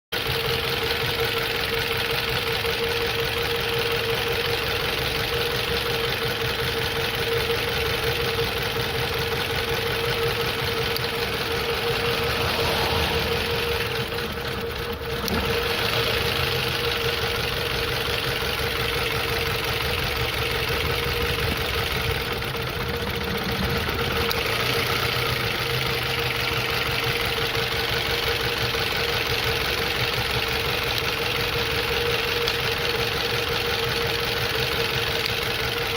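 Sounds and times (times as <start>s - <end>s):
car engine idling with misfire: 0.1s - 35.9s
steady whine: 7.2s - 25.4s.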